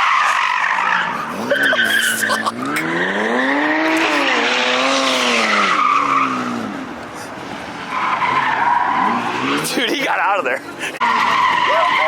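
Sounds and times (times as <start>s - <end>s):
tyres squealing: 0.0s - 2.9s
car engine revving: 0.6s - 9.8s.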